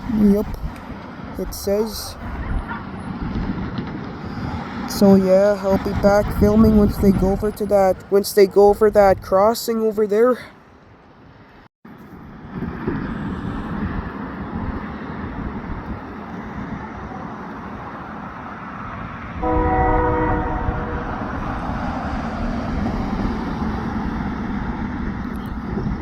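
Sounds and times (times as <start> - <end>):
diesel locomotive rumble: 0.0 - 9.6, 12.2 - 26.0
locomotive horn: 19.4 - 21.5.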